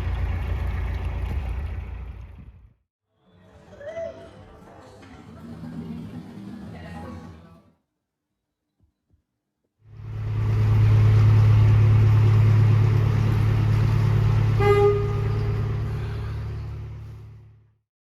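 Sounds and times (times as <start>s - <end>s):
low engine hum: 0.0s - 2.8s, 9.9s - 17.7s
short horn toot: 14.5s - 16.7s.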